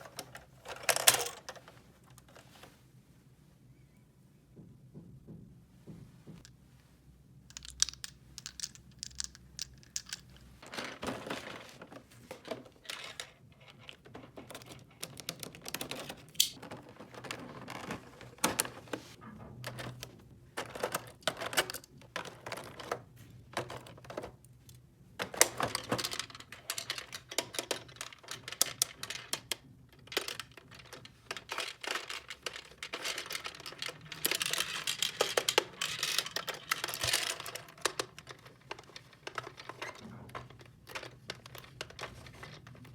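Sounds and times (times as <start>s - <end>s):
plastic toy pieces clicking: 7.5s - 10.4s.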